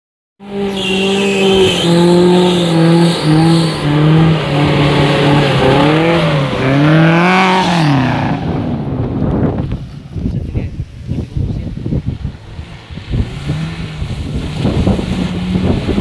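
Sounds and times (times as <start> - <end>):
car engine revving: 0.4 - 9.0, 12.2 - 16.0.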